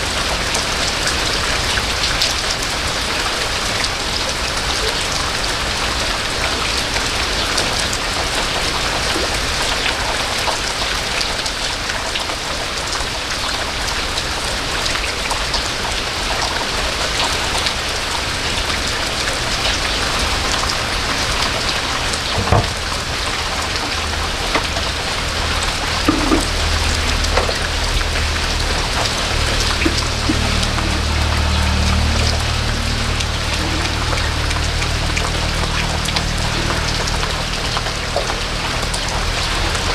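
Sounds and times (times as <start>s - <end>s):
raindrops tapping close by: 0.0s - 39.9s
steady rain hiss: 0.0s - 39.9s
low rumble: 21.3s - 38.8s.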